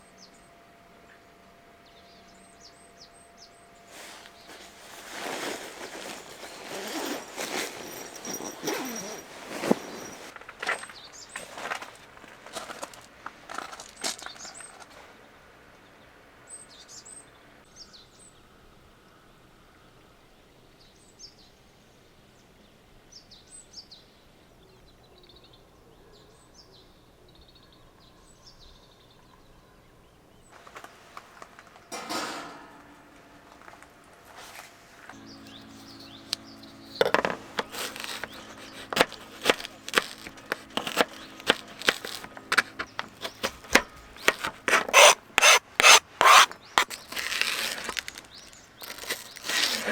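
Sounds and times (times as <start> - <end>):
small birds chirping: 1.9 - 11.6, 35.2 - 49.9
knocks clicks and rustling of handling: 37.0 - 49.9.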